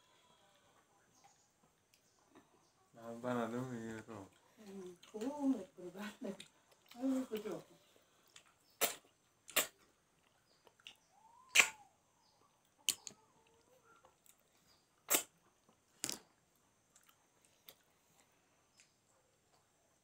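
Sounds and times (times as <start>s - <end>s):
wet mouth smacks chewing: 8.2s - 11.8s, 15.0s - 15.4s.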